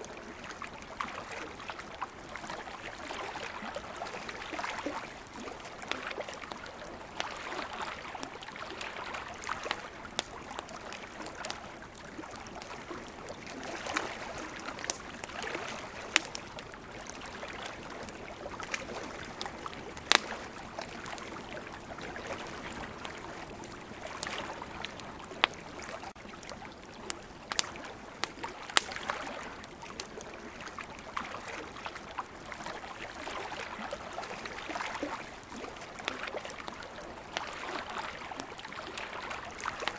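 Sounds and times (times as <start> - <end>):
ocean waves: 0.0 - 26.7
campfire crackling and popping: 0.0 - 39.9.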